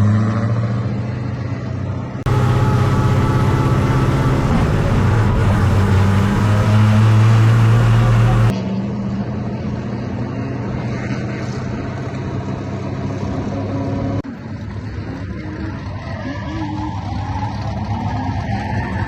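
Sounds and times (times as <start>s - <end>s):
car engine running: 2.3s - 8.5s.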